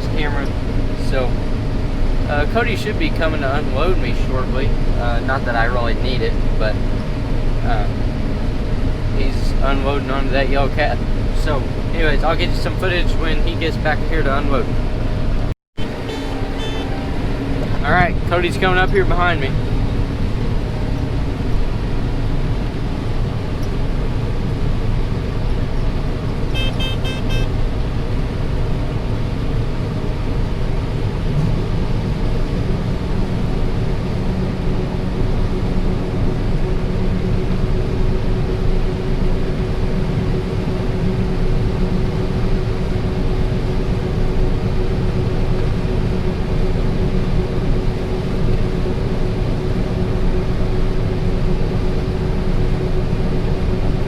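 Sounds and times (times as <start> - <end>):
combine harvester running: 0.0 - 54.0
electronic beeps: 15.8 - 17.7, 26.5 - 27.5.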